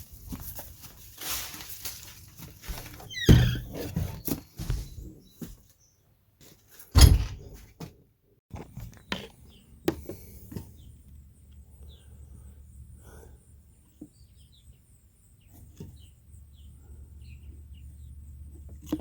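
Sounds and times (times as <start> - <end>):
knocks and clunks: 2.7 - 5.2, 7.0 - 7.9
heavy thump: 7.0 - 7.6.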